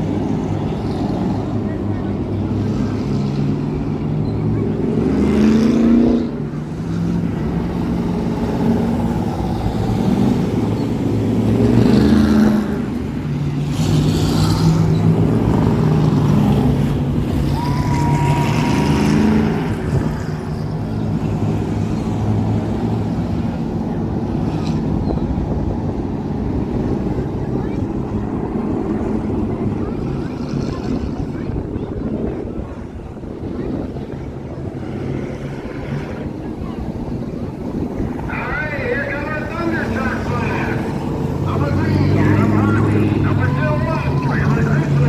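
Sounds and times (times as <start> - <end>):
race engine revving: 0.0 - 23.6, 37.6 - 45.0.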